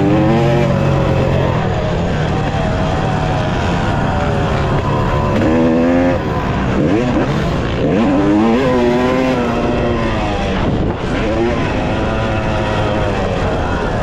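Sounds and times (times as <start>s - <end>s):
dirt bike engine revving: 0.0s - 14.0s
low rumble of wind: 0.0s - 14.0s.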